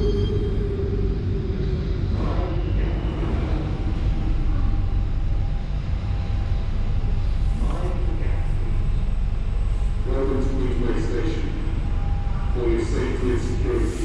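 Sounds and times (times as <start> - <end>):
underground train rumbling: 0.0 - 14.0.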